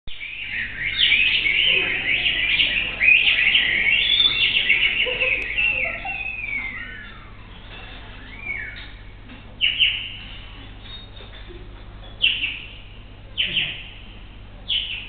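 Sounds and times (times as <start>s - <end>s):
person imitating birdsong: 0.4s - 7.3s.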